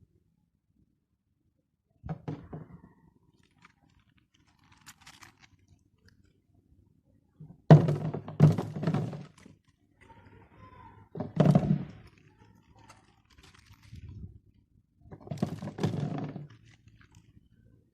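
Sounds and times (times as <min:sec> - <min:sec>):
kitchen thuds and knocks: 0:07.7 - 0:09.2.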